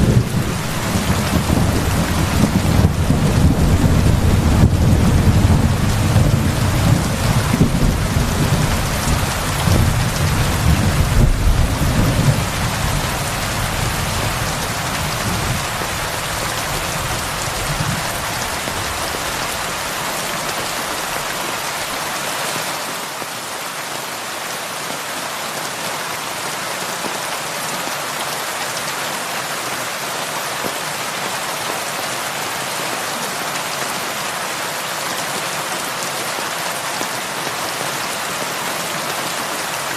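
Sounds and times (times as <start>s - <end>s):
rolling thunder rumble: 0.0s - 19.3s
heavy rain falling: 0.0s - 39.9s.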